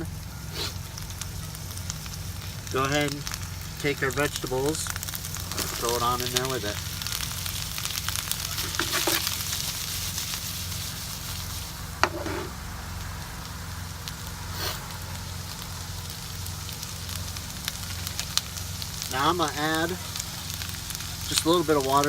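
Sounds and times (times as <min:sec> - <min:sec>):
food sizzling in a frying pan: 0:00.0 - 0:22.0
steady low hum: 0:00.0 - 0:22.0.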